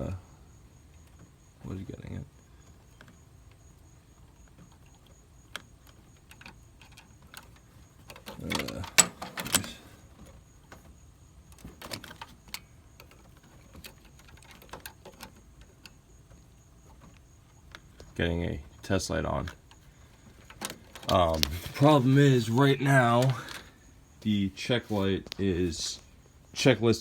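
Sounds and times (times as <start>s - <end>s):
clicks and rattles of handling: 0.9s - 26.1s
clattering clicks: 4.2s - 18.2s.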